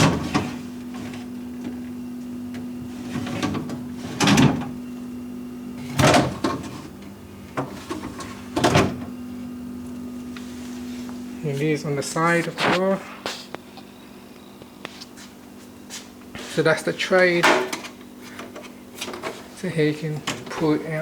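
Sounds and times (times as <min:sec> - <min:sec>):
plastic bins clattering: 0:00.0 - 0:01.9, 0:02.5 - 0:04.8, 0:05.8 - 0:09.2, 0:17.4 - 0:21.0
fridge hum: 0:00.0 - 0:21.0.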